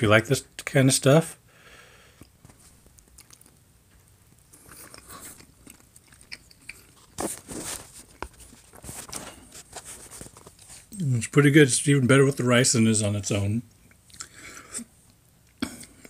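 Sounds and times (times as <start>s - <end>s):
person chewing food: 2.2s - 11.0s, 13.7s - 16.0s.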